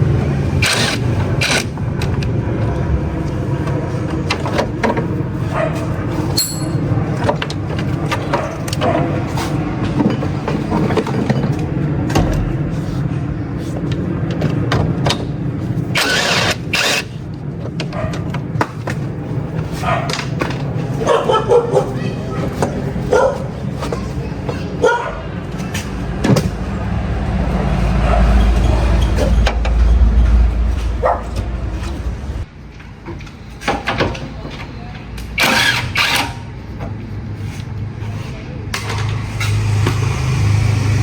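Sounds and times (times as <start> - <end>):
knocks and clanks: 5.8 - 13.2
engine running: 25.2 - 33.6, 34.4 - 41.0.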